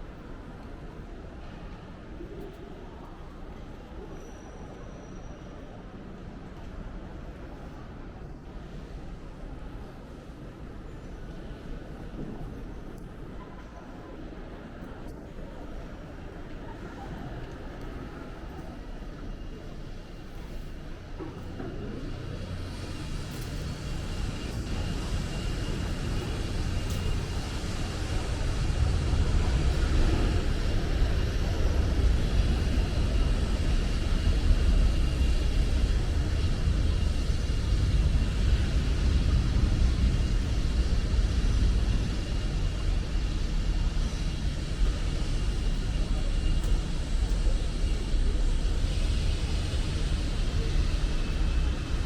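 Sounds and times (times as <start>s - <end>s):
faint high whine: 15.5s - 52.0s.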